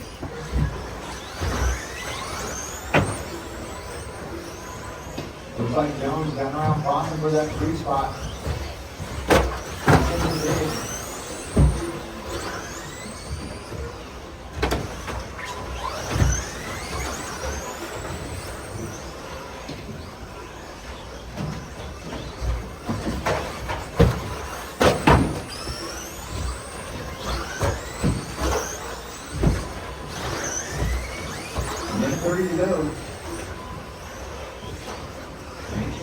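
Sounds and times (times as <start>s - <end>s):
rc truck motors whining: 0.0s - 36.0s
trucks landing with sharp knocks: 7.6s - 19.0s, 21.4s - 36.0s.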